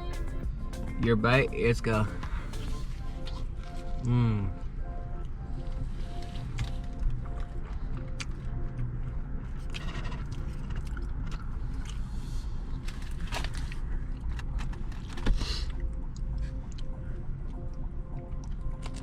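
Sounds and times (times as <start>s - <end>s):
chewing crunchy pizza crust: 5.2s - 19.0s.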